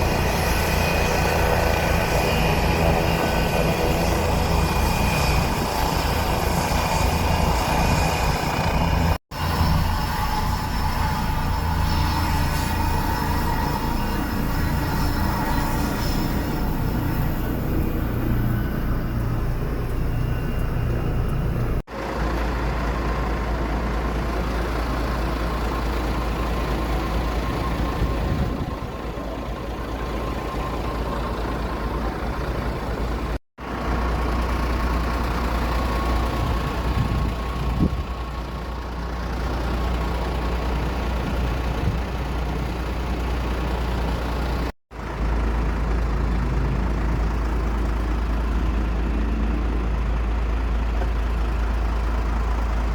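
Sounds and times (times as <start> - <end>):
thin steady whine: 0.0 - 22.4
aircraft engines rumbling: 0.0 - 52.9.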